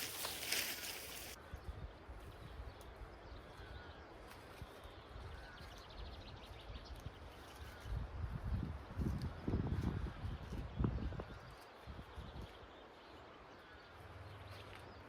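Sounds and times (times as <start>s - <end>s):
rustling: 0.0s - 1.4s.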